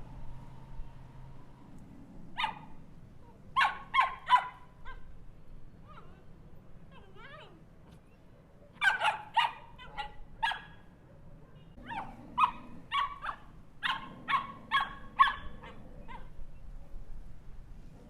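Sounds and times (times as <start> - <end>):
small dog yapping: 2.4 - 2.7, 3.6 - 5.1, 8.8 - 10.8, 11.8 - 16.4.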